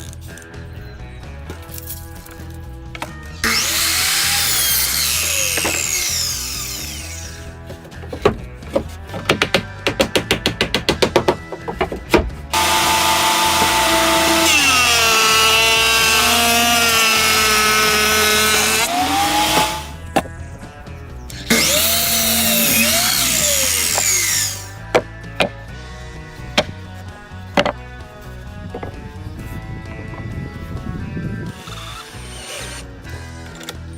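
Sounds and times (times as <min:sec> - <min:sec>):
power tool cutting wood: 0:03.4 - 0:07.6, 0:12.5 - 0:20.0, 0:21.3 - 0:24.8, 0:31.5 - 0:33.5.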